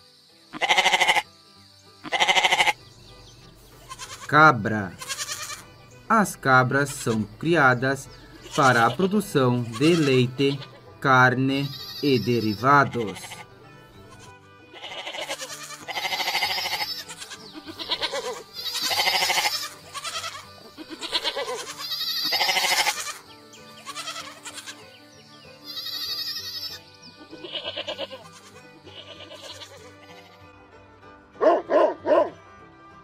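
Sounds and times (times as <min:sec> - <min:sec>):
goats bleating: 0:00.5 - 0:01.3, 0:02.0 - 0:02.8, 0:03.7 - 0:05.7, 0:08.1 - 0:24.9, 0:25.6 - 0:30.5
dog barking: 0:31.4 - 0:32.4.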